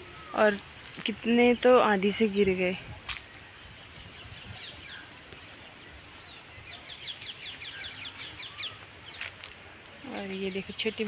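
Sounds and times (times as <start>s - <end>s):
outdoor background hiss: 0.0s - 11.0s
bird chirping: 3.1s - 11.0s.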